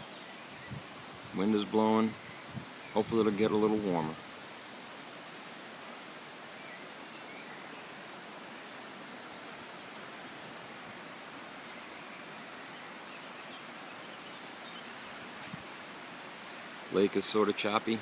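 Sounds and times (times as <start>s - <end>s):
faint bird chirps: 1.9s - 4.5s, 5.7s - 15.4s.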